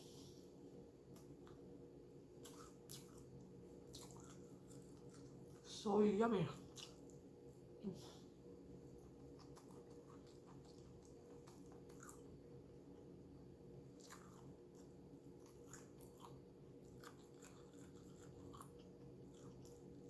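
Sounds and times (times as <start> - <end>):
person chewing crunchy food: 2.3 - 5.6, 6.7 - 7.4, 8.8 - 12.7, 13.8 - 20.0.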